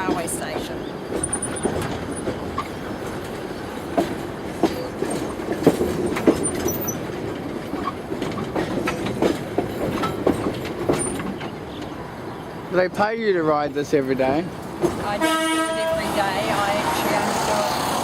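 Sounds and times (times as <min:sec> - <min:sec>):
wheels knocking and clicking: 0:00.0 - 0:12.4
train carriage rumbling on track: 0:00.0 - 0:18.0.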